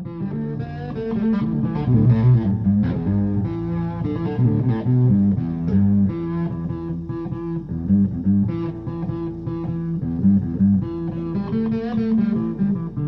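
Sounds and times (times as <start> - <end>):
blues guitar riff: 0.0 - 13.0
low bass notes: 0.0 - 13.0.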